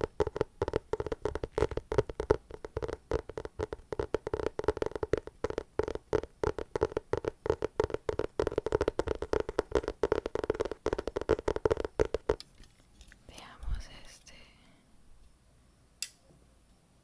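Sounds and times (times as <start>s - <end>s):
hands tapping on an object: 0.0s - 12.5s.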